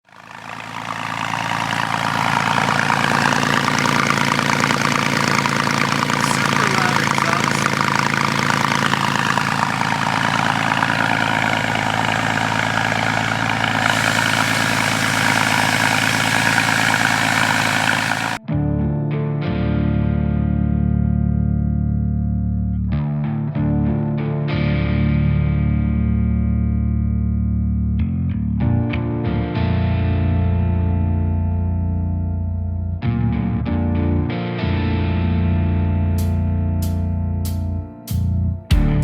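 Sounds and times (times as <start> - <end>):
car engine idling: 0.0 - 18.4.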